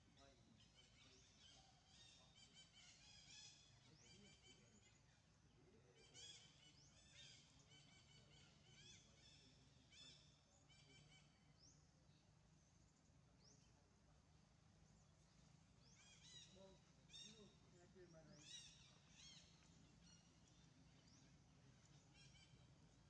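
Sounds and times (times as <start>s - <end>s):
birds chirping: 0.0s - 23.0s
low steady hum: 0.0s - 23.0s.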